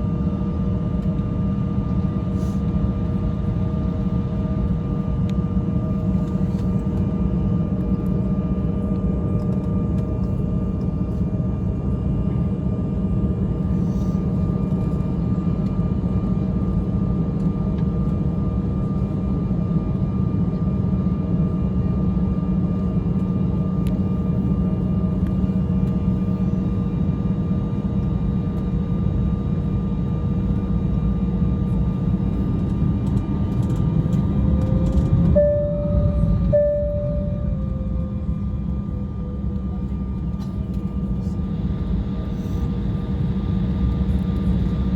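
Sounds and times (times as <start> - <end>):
constant engine whine: 0.0 - 44.9
jet engines rumbling: 22.9 - 44.9.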